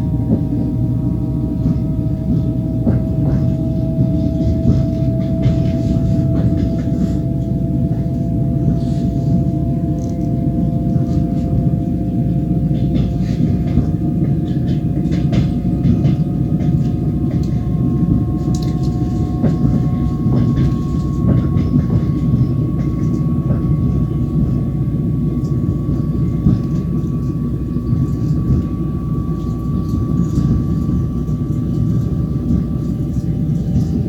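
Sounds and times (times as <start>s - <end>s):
train wheels rumbling: 0.0s - 34.0s
wheels clicking on rails: 12.7s - 34.0s.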